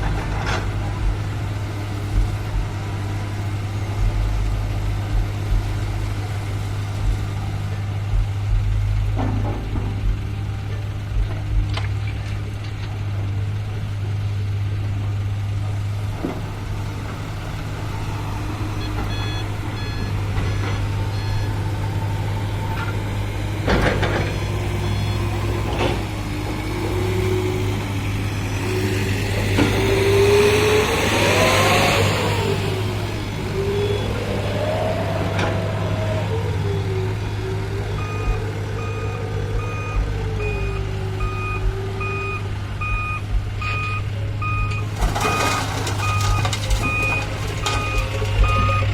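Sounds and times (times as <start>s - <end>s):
diesel heavy equipment engine: 0.0s - 48.9s
truck reversing alarm beeping: 16.3s - 48.9s
beeper: 18.8s - 21.5s, 33.6s - 37.0s.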